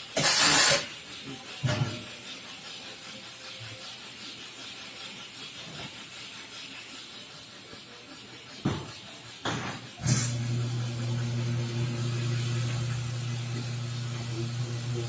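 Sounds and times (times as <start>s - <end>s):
soda dispenser hissing: 9.9s - 15.0s.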